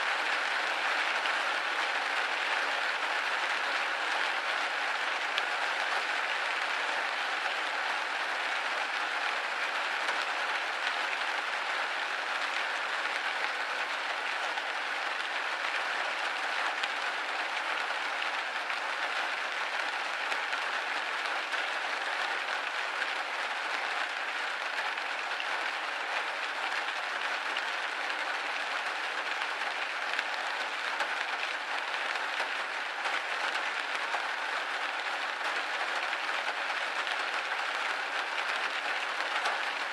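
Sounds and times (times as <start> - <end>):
rain hitting a window pane: 0.0 - 39.9.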